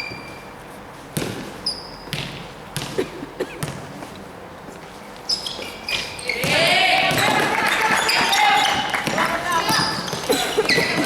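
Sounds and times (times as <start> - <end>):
sneaker squeaks: 0.0 - 11.0
basketball bouncing on court: 1.2 - 3.9, 5.4 - 11.0.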